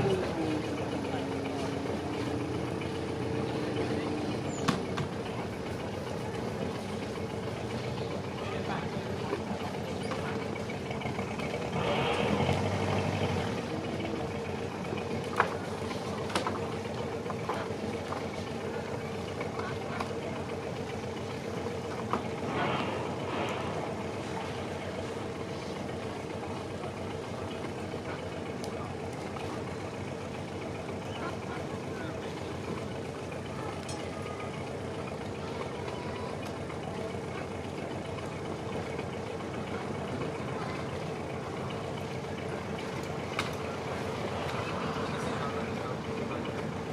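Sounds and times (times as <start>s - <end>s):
boat engine idling: 0.0s - 46.9s.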